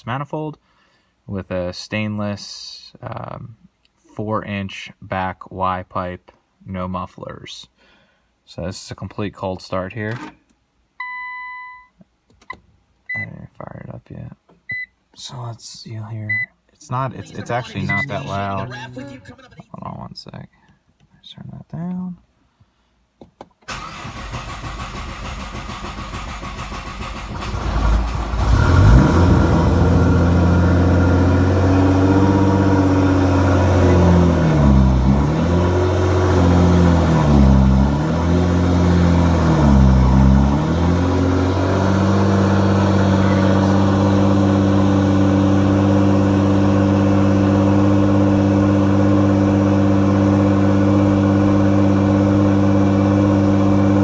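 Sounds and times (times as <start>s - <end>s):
car engine idling loudly: 26.2s - 54.0s.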